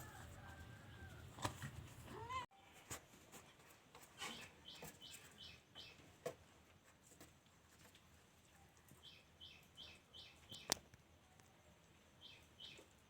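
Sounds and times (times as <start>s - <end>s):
small bird high chirps: 9.0s - 10.8s, 12.2s - 12.9s.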